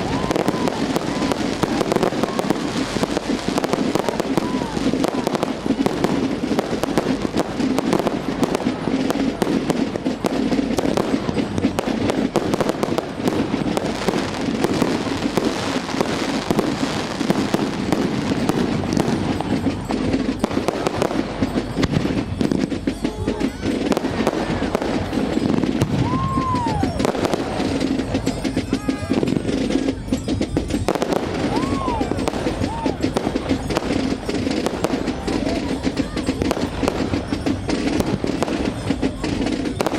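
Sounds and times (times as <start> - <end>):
firework whistle: 0.0 - 39.9
fireworks crackling and popping: 0.0 - 39.9.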